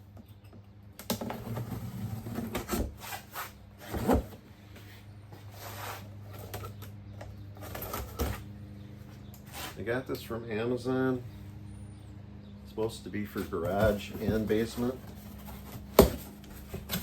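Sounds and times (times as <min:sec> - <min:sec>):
steady low hum: 0:00.0 - 0:17.0
box knocks and clatter: 0:13.6 - 0:17.0.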